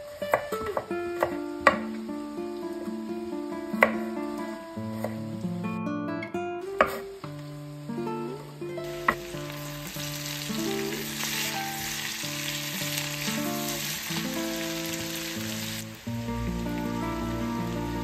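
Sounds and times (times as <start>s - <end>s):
meat and onions sizzling in a pan: 0.0s - 5.7s, 6.7s - 18.0s
background music: 13.0s - 18.0s.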